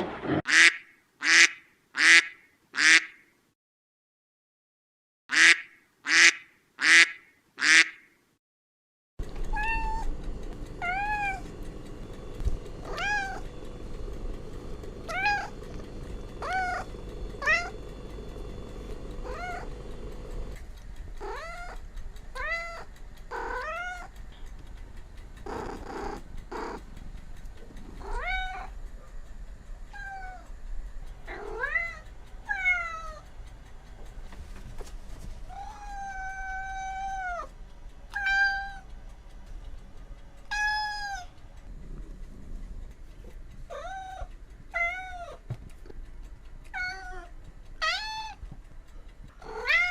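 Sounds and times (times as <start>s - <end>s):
duck quacks: 0.5s - 3.2s, 5.3s - 8.1s
cat meowing: 9.5s - 10.1s, 10.8s - 11.4s, 12.8s - 13.5s, 15.1s - 15.6s, 17.4s - 17.8s, 19.2s - 19.7s, 21.2s - 21.8s, 22.4s - 24.1s, 28.0s - 28.7s, 35.5s - 37.5s, 38.1s - 38.8s, 40.5s - 41.3s, 43.7s - 45.4s, 46.8s - 48.4s, 49.4s - 49.9s.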